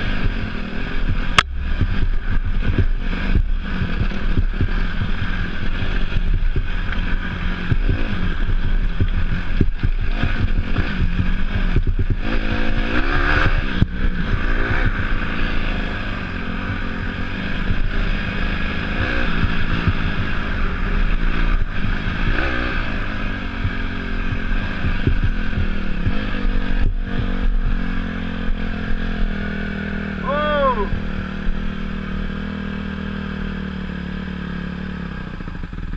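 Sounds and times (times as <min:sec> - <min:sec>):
dirt bike engine revving: 0:00.0 - 0:35.9.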